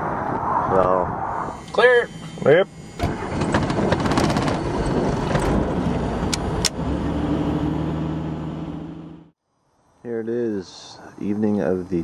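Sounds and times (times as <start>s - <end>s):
engine starting: 3.0s - 5.6s.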